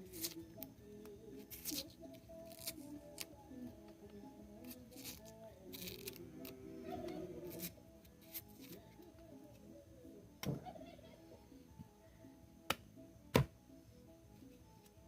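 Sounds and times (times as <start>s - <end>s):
quiet background music: 0.0s - 15.0s
knife scraping root: 1.4s - 3.3s, 4.6s - 6.6s.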